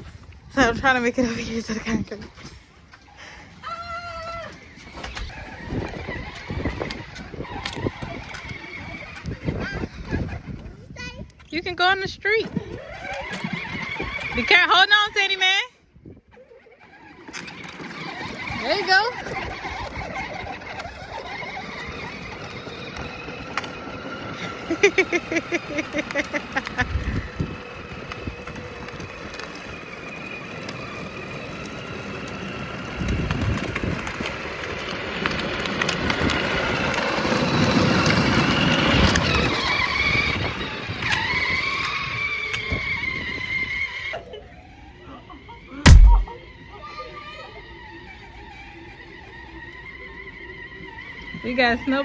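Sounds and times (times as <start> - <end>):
small motorbike running: 0.0 - 52.0
rapid pulses: 45.9 - 46.4.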